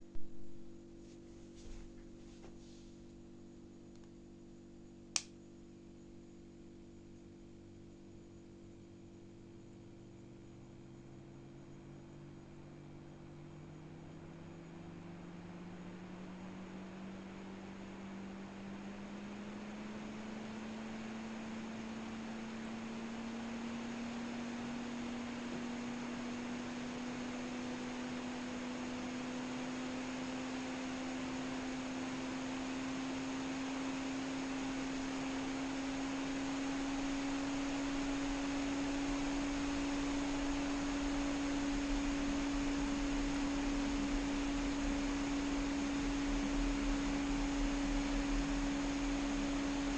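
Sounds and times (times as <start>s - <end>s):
electric fan hum rising in pitch: 0.0s - 49.9s.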